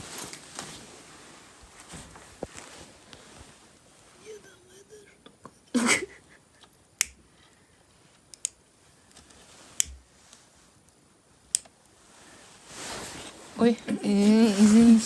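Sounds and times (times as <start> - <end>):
sharp clicks: 6.6 - 7.2, 8.3 - 8.6.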